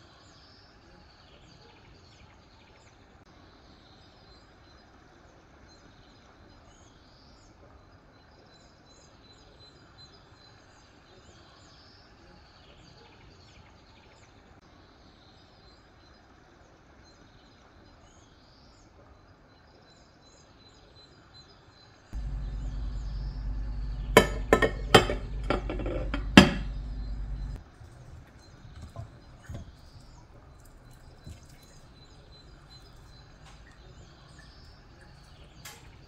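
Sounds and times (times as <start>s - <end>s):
faint high chirps: 22.2s - 27.6s
glass dish clinking: 22.2s - 27.6s
steady low hum: 22.2s - 36.0s.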